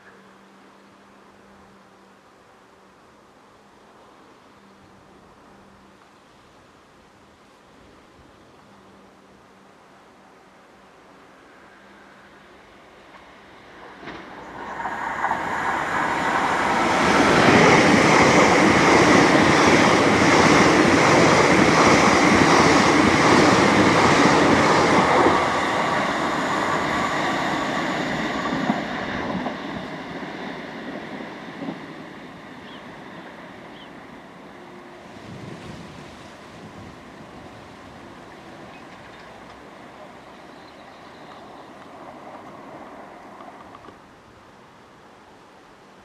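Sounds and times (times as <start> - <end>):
electric train passing: 8.6 - 45.3.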